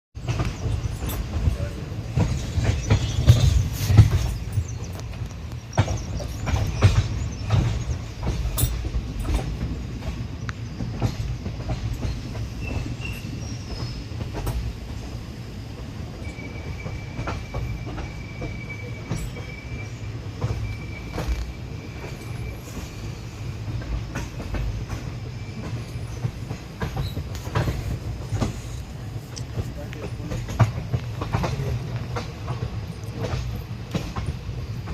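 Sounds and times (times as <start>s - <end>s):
train rumbling on track: 0.2s - 34.9s
wheels clacking over rails: 0.2s - 34.9s
faint high squeal: 16.1s - 23.2s.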